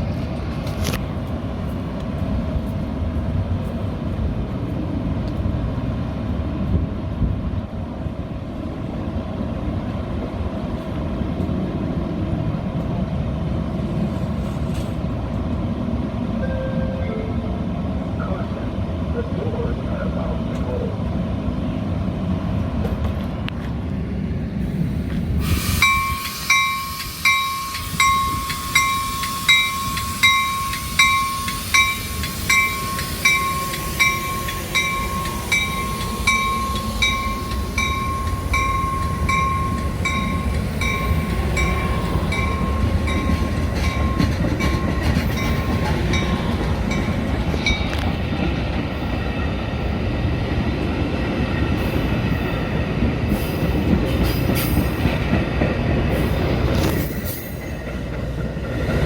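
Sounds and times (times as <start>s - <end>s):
train rumbling: 0.0s - 59.0s
bell ringing: 16.4s - 17.6s, 25.9s - 47.8s.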